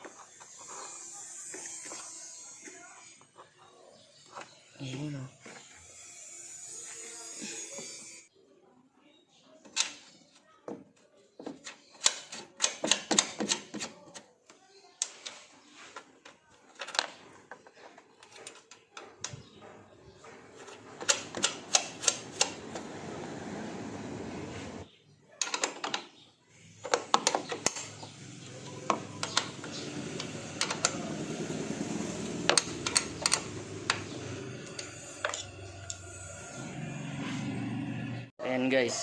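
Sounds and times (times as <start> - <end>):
sharp clicks and knocks: 18.2 - 22.8, 26.8 - 31.0, 32.3 - 36.0.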